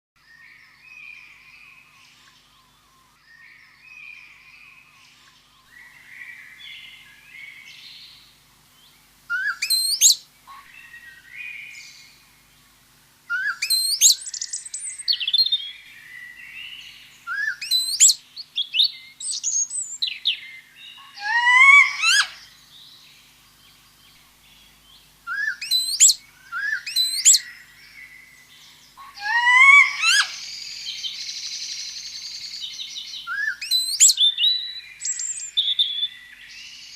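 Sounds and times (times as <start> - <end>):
loud sharp bird chirps: 9.3 - 12.1, 13.3 - 22.5, 25.3 - 28.1, 29.0 - 36.9
soft bird twittering: 9.3 - 12.2, 13.3 - 36.9.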